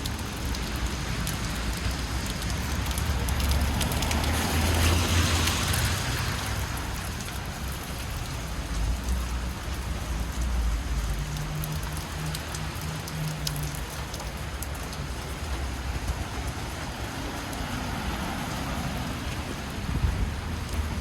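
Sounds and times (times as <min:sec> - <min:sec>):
drip ticks: 0:00.0 - 0:04.8, 0:07.0 - 0:16.6
low traffic rumble: 0:00.0 - 0:21.0
rain falling on street: 0:00.0 - 0:21.0.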